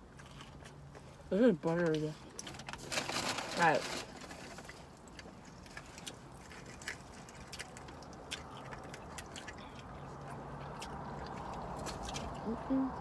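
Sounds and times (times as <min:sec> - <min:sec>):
person chewing food: 0:00.0 - 0:01.3, 0:04.3 - 0:12.7.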